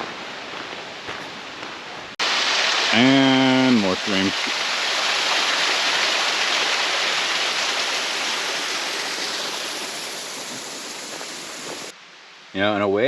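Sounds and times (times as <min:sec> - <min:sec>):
stream water rushing: 0:02.2 - 0:12.5.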